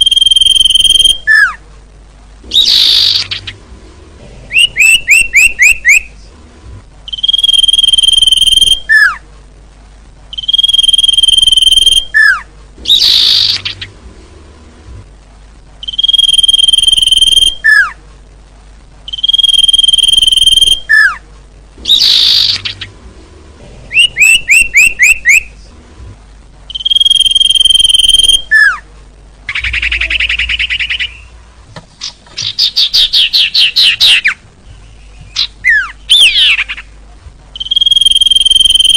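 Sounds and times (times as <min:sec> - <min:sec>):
high bird whistle: 0:00.0 - 0:01.6, 0:04.5 - 0:06.1, 0:07.1 - 0:09.2, 0:10.4 - 0:13.8, 0:15.8 - 0:18.0, 0:19.1 - 0:21.2, 0:21.9 - 0:22.9, 0:23.9 - 0:25.5, 0:26.7 - 0:28.8, 0:35.3 - 0:36.7, 0:37.6 - 0:38.9
harsh buzzy bird call: 0:02.4 - 0:03.7, 0:04.5 - 0:06.2, 0:10.3 - 0:14.0, 0:15.8 - 0:18.0, 0:19.1 - 0:21.2, 0:21.8 - 0:23.0, 0:23.9 - 0:25.6, 0:26.7 - 0:28.9, 0:29.5 - 0:31.4, 0:32.0 - 0:37.0.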